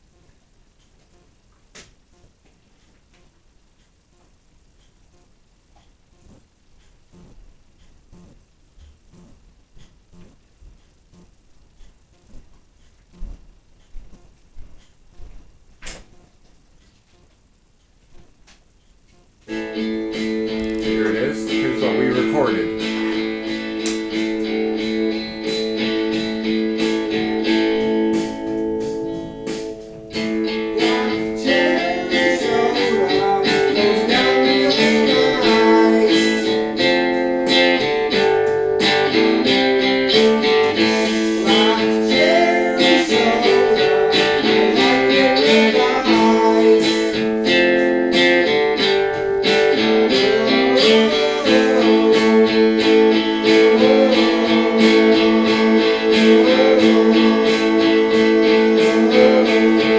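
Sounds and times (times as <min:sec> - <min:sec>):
steady drum beat: 0:06.0 - 0:16.4, 0:19.2 - 0:59.9
guitar chords: 0:19.5 - 0:59.9
man singing: 0:20.5 - 0:23.4, 0:30.4 - 0:37.0, 0:40.1 - 0:47.3, 0:50.0 - 0:59.9.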